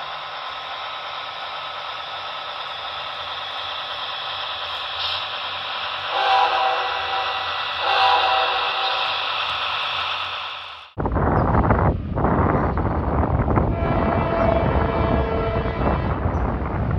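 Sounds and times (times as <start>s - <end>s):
steady hiss: 0.0s - 11.0s
locomotive air horn: 5.9s - 10.2s, 13.7s - 16.3s.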